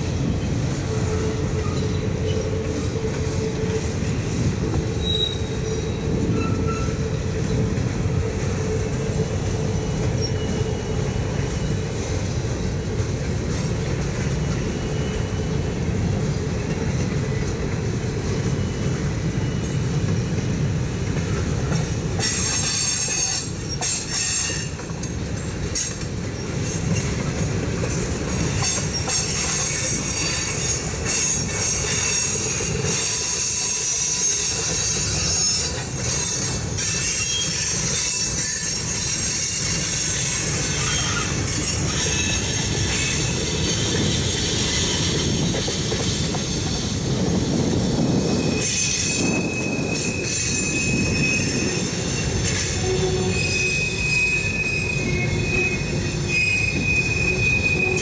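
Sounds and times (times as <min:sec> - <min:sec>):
freight train rumbling on rails: 0:00.0 - 0:58.0
high-pitched wheel squeal: 0:04.9 - 0:07.6, 0:28.6 - 0:58.0.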